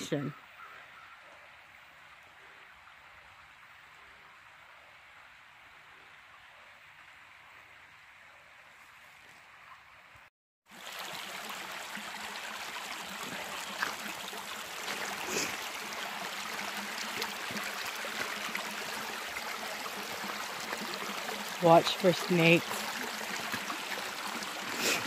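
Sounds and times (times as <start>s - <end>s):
stream water rushing: 10.7s - 25.0s.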